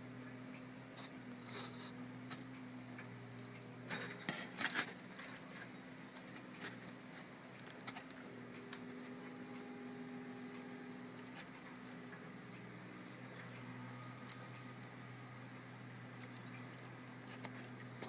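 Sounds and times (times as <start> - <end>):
distant engine humming: 0.0 - 18.0.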